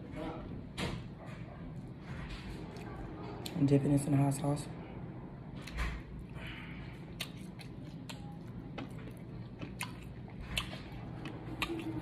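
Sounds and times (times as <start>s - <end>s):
person chewing food: 5.6s - 12.0s.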